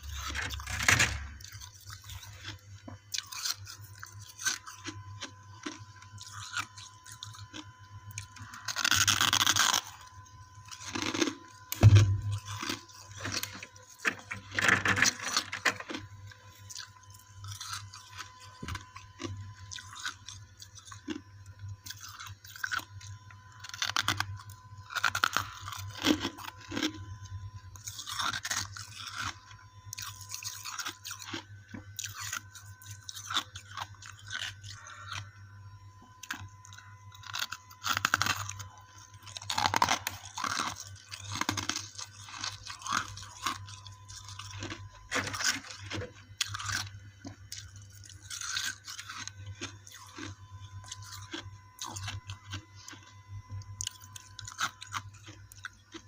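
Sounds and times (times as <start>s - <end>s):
faint electrical hum: 0.0s - 56.0s
ice being chewed: 0.0s - 56.0s.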